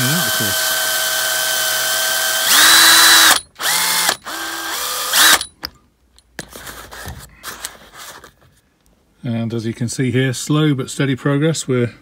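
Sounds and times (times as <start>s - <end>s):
electric drill whining: 0.0s - 5.5s.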